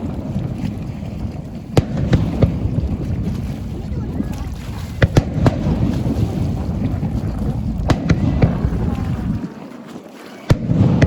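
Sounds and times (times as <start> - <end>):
low rumble of fireworks bursts: 0.0 - 9.5, 10.5 - 11.0
fireworks bangs and crackles: 1.3 - 3.2, 4.9 - 9.4, 10.4 - 11.0.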